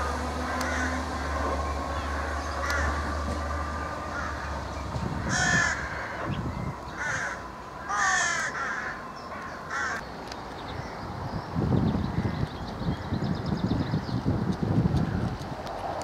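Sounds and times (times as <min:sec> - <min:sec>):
bird harsh calls: 0:00.0 - 0:10.0.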